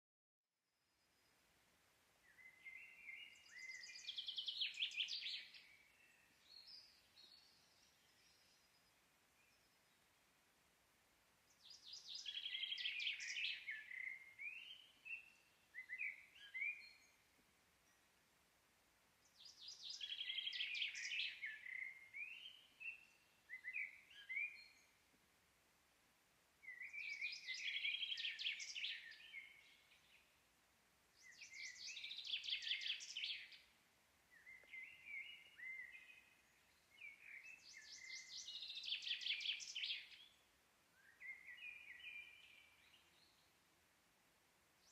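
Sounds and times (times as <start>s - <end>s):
songbird singing trills: 2.2s - 10.0s, 11.5s - 18.1s, 19.2s - 25.0s, 26.6s - 30.3s, 31.2s - 33.7s, 34.3s - 43.5s.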